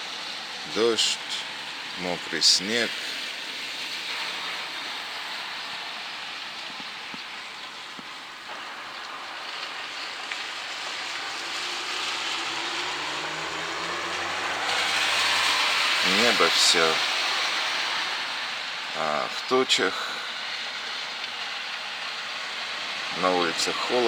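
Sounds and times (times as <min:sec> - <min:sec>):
rain and wet snow falling: 0:00.0 - 0:24.0.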